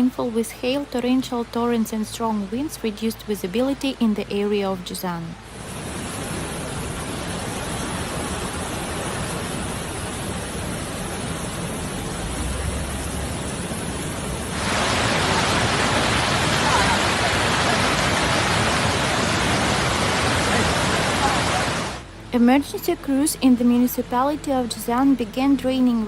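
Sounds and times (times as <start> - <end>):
heavy rain: 5.4 - 22.1
running floodwater: 5.4 - 22.1.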